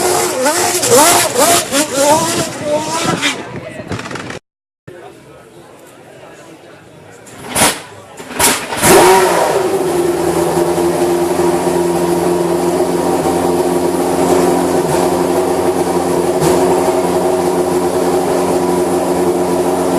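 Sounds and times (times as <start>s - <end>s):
racing car engine blipping: 0.0s - 3.4s.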